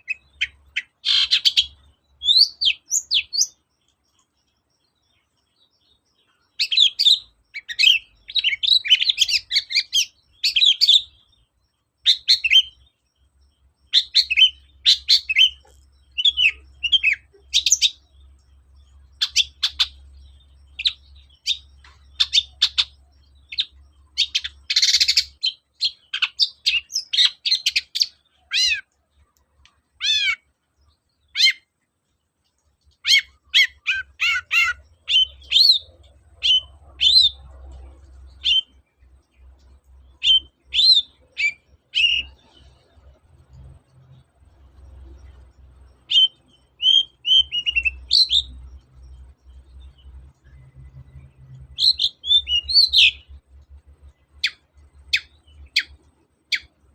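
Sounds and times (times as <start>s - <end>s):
shrike singing chirps and whistles: 0.0s - 3.6s, 6.3s - 11.3s, 12.0s - 12.8s, 13.8s - 18.2s, 18.9s - 29.0s, 30.0s - 30.5s, 31.2s - 31.7s, 33.0s - 37.6s, 38.3s - 38.8s, 40.1s - 42.8s, 46.0s - 53.4s, 54.4s - 56.8s.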